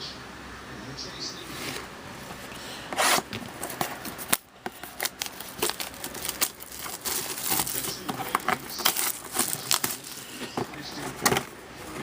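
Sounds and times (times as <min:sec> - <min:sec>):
cardboard packaging clicks: 0:03.0 - 0:12.0
plastic wrapping crinkling and tearing: 0:03.5 - 0:12.0.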